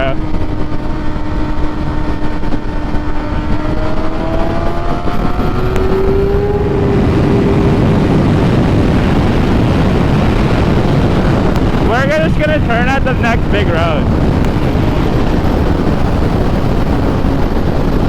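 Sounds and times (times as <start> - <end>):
motorcycle engine accelerating: 0.0 - 18.0
wind rush on microphone: 0.0 - 18.0.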